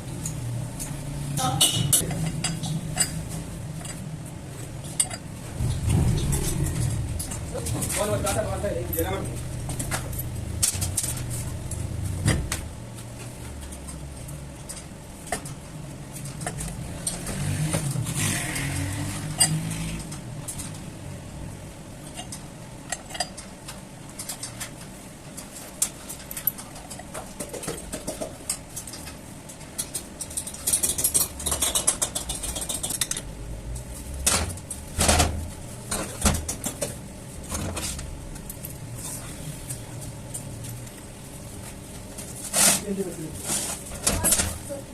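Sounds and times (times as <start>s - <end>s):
low vehicle hum: 0.0s - 15.1s.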